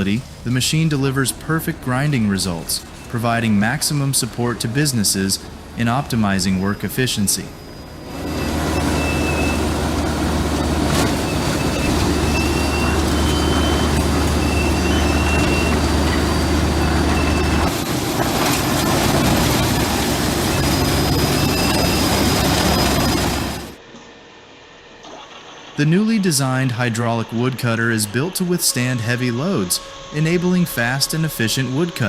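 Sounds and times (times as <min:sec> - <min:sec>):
deep machinery hum: 0:00.0 - 0:24.9, 0:26.0 - 0:32.0
machinery mechanical din: 0:08.0 - 0:23.8.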